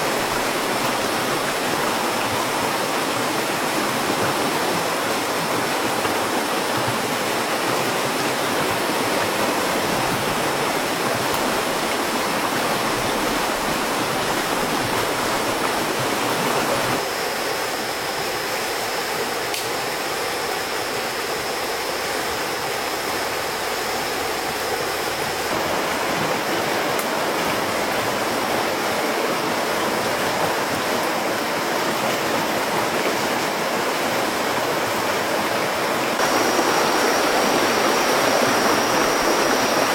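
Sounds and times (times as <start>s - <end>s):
stream water rushing: 0.0s - 39.9s
thin high tone: 36.2s - 39.9s.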